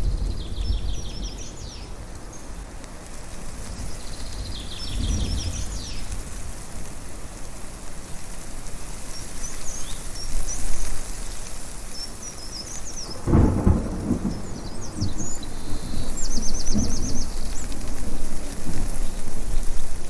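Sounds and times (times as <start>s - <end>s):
thunder crack: 0.0s - 2.0s, 13.1s - 20.0s
rumbling thunder: 0.0s - 2.2s, 3.8s - 6.1s, 13.0s - 20.0s
birds chirping: 0.0s - 2.7s, 3.7s - 6.1s, 11.9s - 19.7s.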